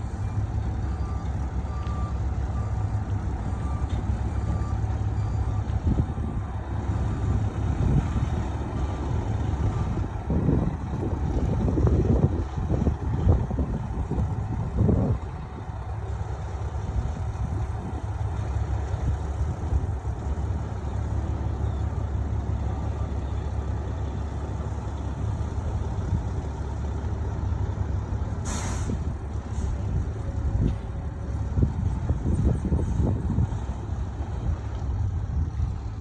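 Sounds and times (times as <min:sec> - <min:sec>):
diesel truck engine rumbling: 0:00.0 - 0:36.0
air brake hiss: 0:28.4 - 0:29.8.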